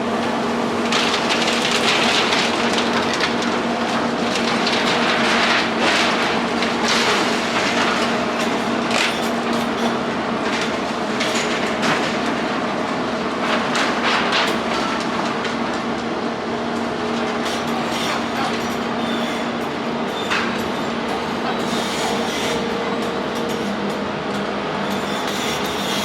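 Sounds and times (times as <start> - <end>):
heavy engine humming: 14.6 - 26.0.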